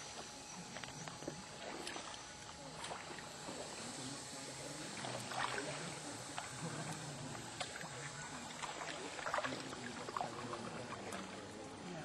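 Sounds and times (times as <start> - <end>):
water lapping around hulls: 0.0 - 12.0
paddles splashing: 4.9 - 11.7.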